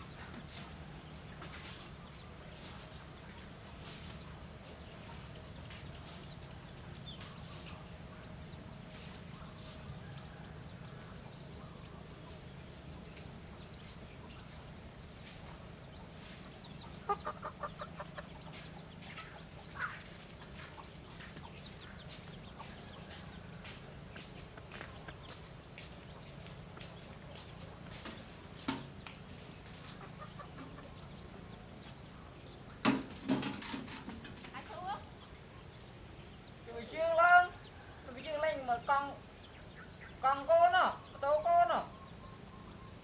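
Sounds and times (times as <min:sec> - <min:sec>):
chicken clucking: 0:15.3 - 0:28.4, 0:29.7 - 0:32.9.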